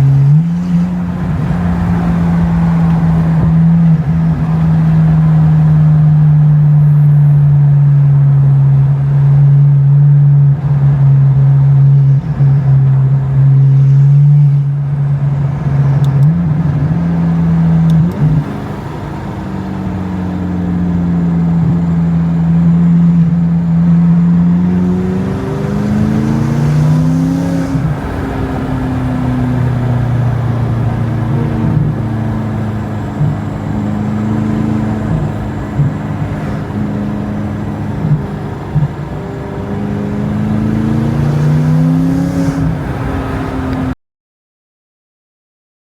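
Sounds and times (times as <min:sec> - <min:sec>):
car engine driving: 0:00.0 - 0:44.0.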